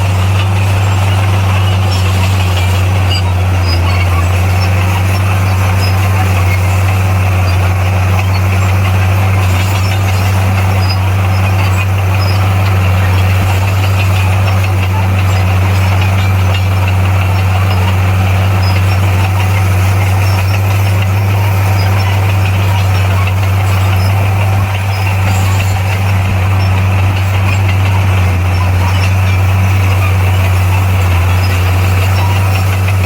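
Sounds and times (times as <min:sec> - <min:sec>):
diesel engine droning: 0:00.0 - 0:33.0.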